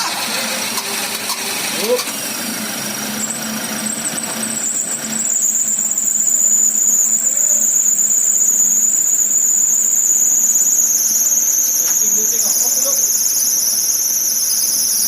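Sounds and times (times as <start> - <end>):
shrill high-pitched whine: 4.6 - 15.0.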